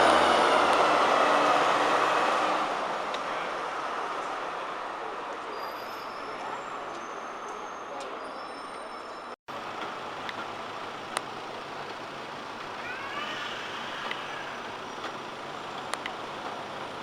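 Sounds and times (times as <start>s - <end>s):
bus engine and road noise: 0.0s - 17.0s
light clicks: 15.8s - 16.6s.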